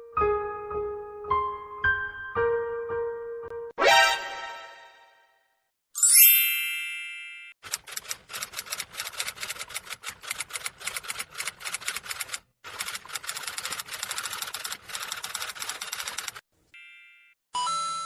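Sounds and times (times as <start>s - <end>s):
rapid even clicking: 7.7s - 16.4s.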